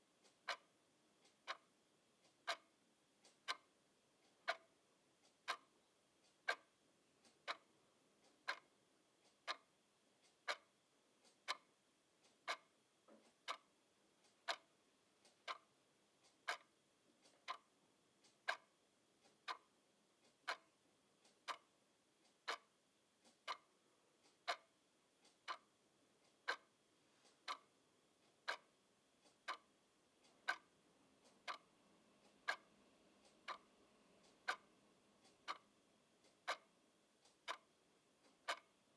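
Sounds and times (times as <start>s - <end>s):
clock ticking: 0.2s - 6.7s, 7.4s - 8.7s, 9.4s - 9.7s, 10.4s - 10.8s, 11.4s - 11.7s, 12.4s - 12.7s, 13.4s - 38.9s.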